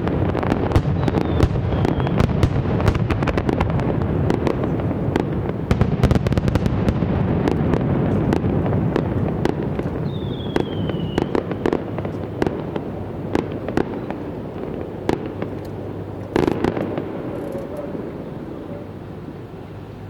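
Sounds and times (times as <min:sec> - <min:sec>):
fireworks booming and cracking: 0:00.0 - 0:19.5
falling firework whistle: 0:00.7 - 0:03.1, 0:10.0 - 0:12.6.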